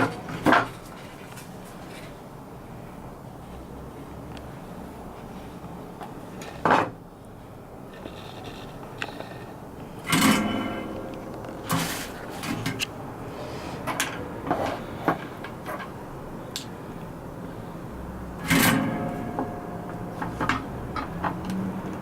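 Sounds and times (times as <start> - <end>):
loud rustling scrapes: 7.9 - 9.6, 11.6 - 13.8.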